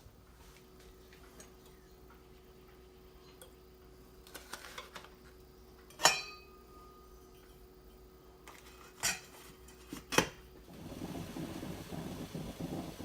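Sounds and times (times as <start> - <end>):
faint steady hum: 0.0 - 13.0
sharp ringing clink: 6.0 - 7.2.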